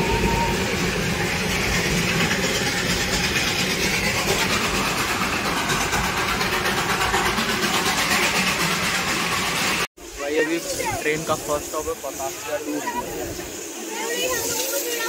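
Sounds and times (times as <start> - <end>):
train rumbling and rattling: 0.0 - 15.0.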